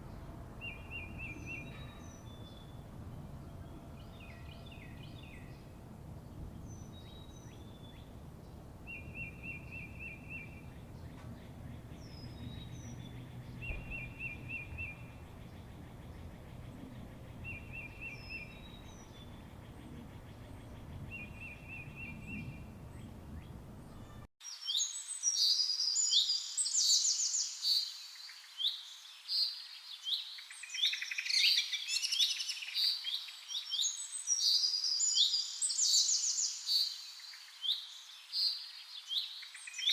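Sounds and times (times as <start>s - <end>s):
low background hum: 0.0s - 24.3s
finches chirping and trilling: 6.3s - 24.2s.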